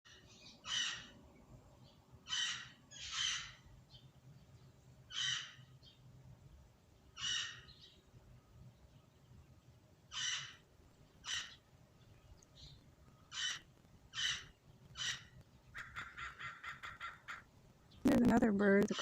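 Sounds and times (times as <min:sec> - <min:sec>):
crow cawing: 0:00.6 - 0:01.1, 0:02.3 - 0:03.6, 0:05.1 - 0:05.6, 0:07.2 - 0:07.6, 0:10.1 - 0:10.6, 0:11.2 - 0:11.6, 0:13.3 - 0:17.5.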